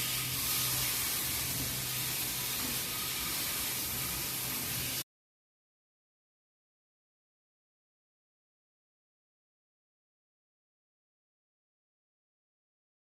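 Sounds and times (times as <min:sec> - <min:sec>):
chicken sizzling in a pan: 0:00.0 - 0:05.0.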